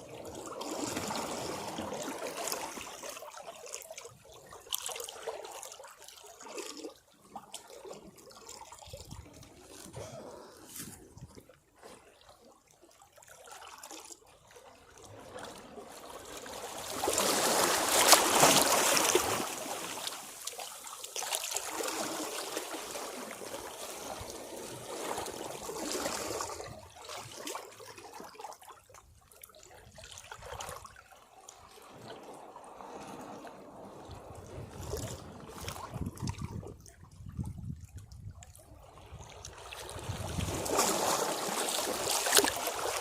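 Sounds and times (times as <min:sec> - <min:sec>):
sea waves breaking on rocks: 0:00.2 - 0:03.1, 0:15.6 - 0:26.7, 0:39.4 - 0:43.0.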